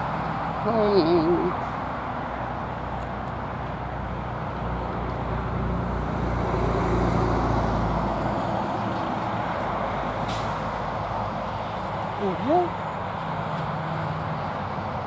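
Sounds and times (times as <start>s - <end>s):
vehicle driving past: 1.4s - 12.2s.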